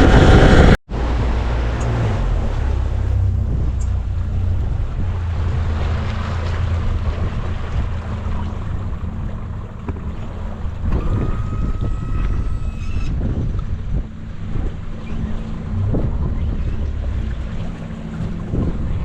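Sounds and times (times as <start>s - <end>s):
wind rushing: 0.0s - 1.3s, 10.8s - 19.0s
boat motor running: 0.0s - 19.0s
water rushing past: 0.0s - 19.0s.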